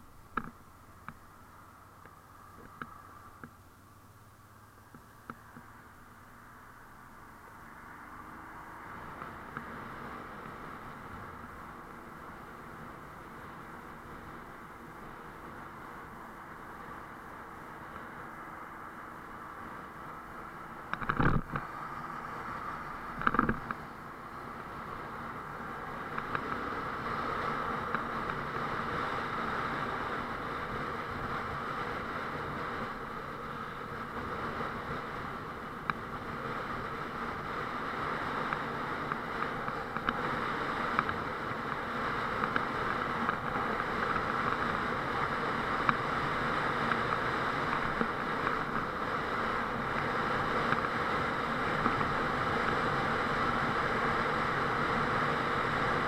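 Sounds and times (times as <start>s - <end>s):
motorcycle engine running: 19.0s - 56.0s.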